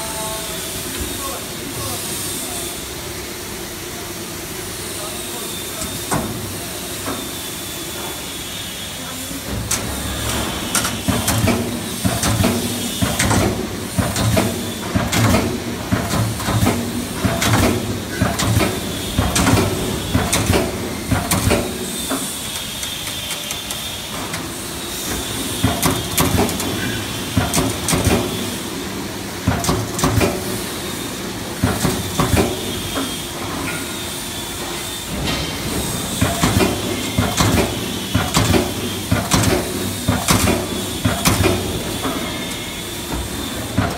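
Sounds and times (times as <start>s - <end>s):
hydraulic hum and hiss: 0.0s - 43.9s
punch press striking sheet metal: 35.1s - 43.9s.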